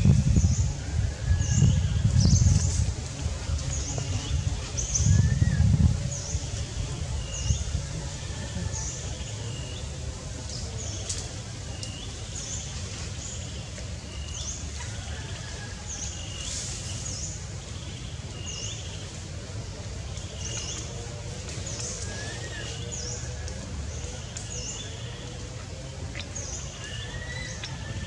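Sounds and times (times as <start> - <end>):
steady low rumble: 0.0 - 14.8.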